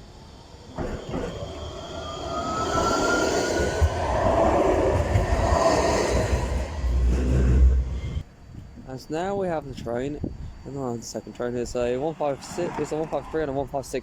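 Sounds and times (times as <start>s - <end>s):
diesel train rumble: 0.0s - 8.2s
tram electric motor whine: 0.0s - 8.2s
rolling rail noise: 0.0s - 8.8s.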